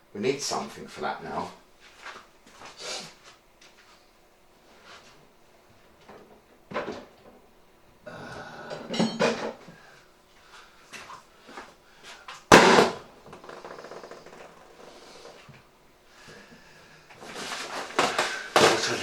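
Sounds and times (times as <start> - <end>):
balloon bursting with loud bang: 12.5 - 13.1.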